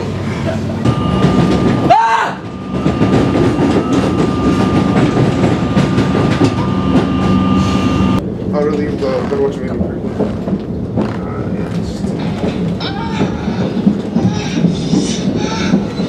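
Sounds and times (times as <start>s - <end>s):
train wheels rumbling on track: 0.0s - 16.0s
thin steady whine: 0.8s - 8.2s.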